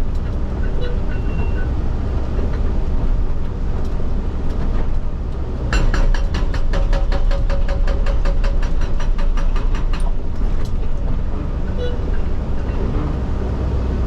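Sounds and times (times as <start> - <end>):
excavator diesel engine running: 0.0 - 14.0
hydraulic rock breaker hammering: 5.7 - 10.2.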